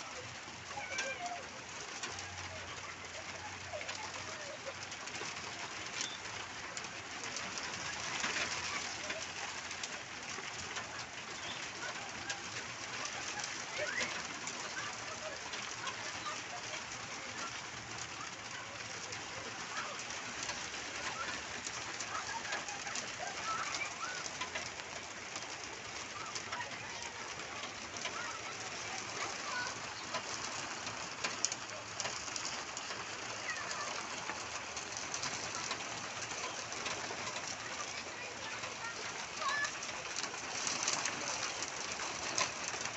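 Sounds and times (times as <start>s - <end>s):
birds chirping: 11.3s - 12.0s.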